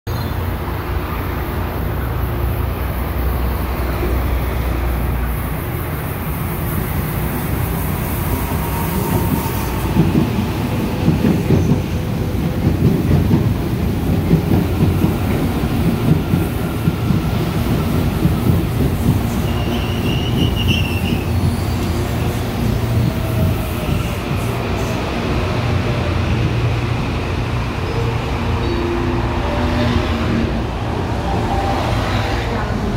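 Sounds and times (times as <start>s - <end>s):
electric train rumbling past: 0.2s - 32.9s
high wheel squeal: 8.2s - 10.0s, 19.3s - 24.2s.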